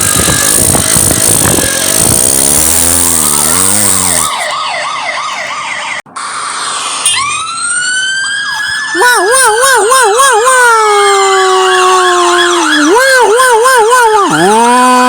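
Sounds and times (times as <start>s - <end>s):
noisy cartoon car engine: 0.0s - 4.7s, 5.4s - 15.0s
siren winding up: 0.0s - 15.0s
police siren warbling: 1.4s - 15.0s.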